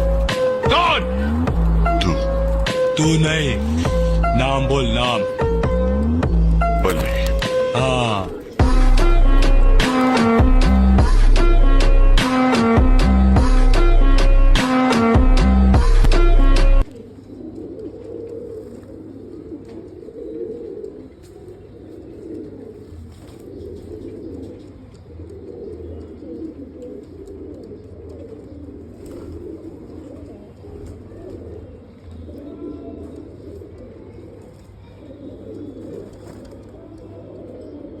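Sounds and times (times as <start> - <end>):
pigeons cooing: 0.0 - 38.0.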